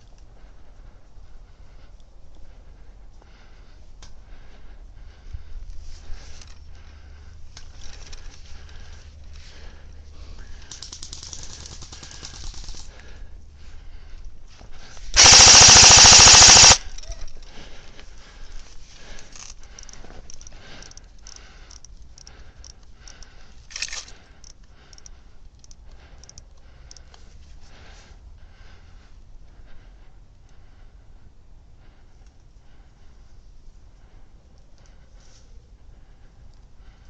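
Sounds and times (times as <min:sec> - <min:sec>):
airsoft rifle full-auto burst: 0:15.2 - 0:16.9.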